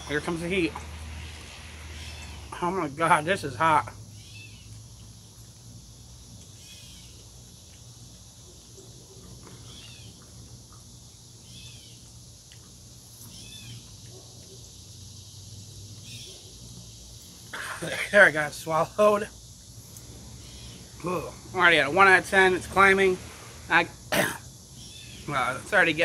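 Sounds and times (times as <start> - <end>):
high hiss: 0.0 - 3.4, 17.2 - 26.0.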